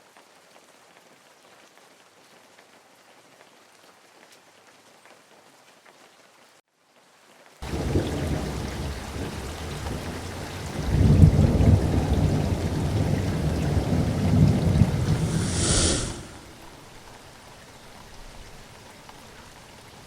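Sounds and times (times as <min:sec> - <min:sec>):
sea waves breaking: 0:13.8 - 0:16.8
short hiss: 0:15.0 - 0:16.7.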